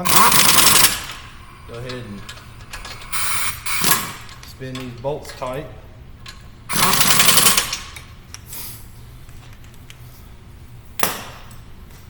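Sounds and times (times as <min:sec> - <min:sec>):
pneumatic impact wrench rattling: 0:00.0 - 0:08.2.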